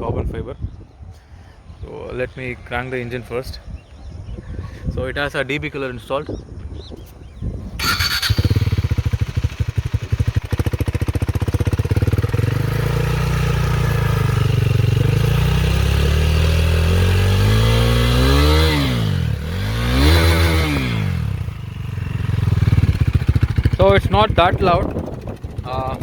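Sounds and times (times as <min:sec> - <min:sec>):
motorcycle engine idling and revving: 0:07.3 - 0:26.0.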